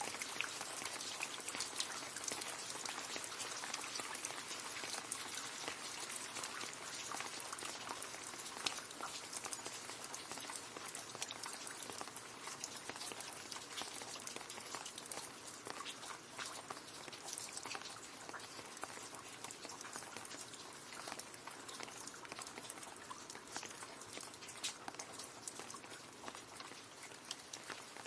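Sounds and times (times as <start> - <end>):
rain splashing into a puddle: 0.0 - 28.0.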